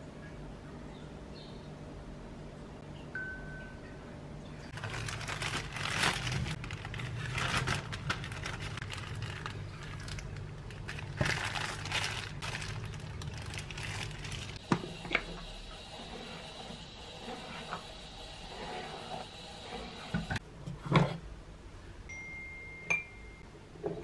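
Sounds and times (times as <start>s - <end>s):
crinkling and rustling handling: 4.7s - 14.7s.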